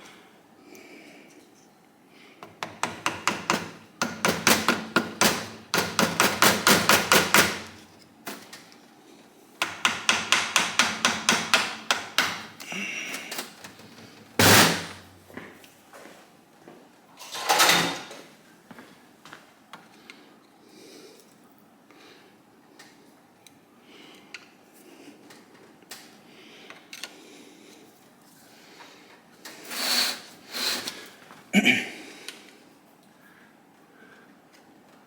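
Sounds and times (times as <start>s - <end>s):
hammer tapping on engine part: 2.4s - 7.5s, 9.6s - 12.4s.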